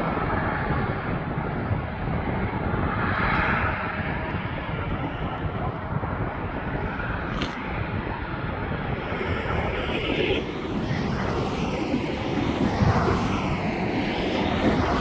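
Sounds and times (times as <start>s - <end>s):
airplane engines: 0.0s - 15.0s
wind rumbling on microphone: 0.0s - 15.0s.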